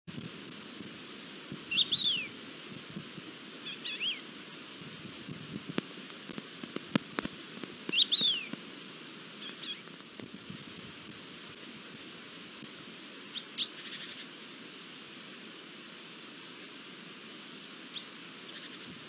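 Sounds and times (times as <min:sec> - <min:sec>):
steady outdoor hiss: 0:00.1 - 0:19.0
bird chirping: 0:05.8 - 0:08.8
sharp clicks: 0:05.8 - 0:10.4.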